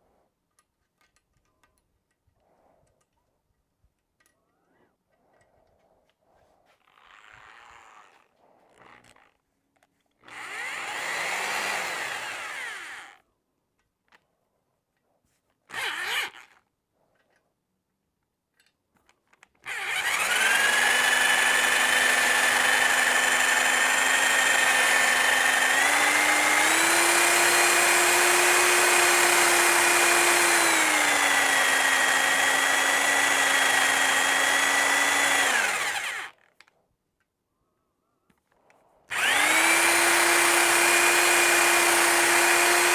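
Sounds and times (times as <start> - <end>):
drill motor whine: 10.3 - 13.1, 19.7 - 36.3, 39.1 - 42.9.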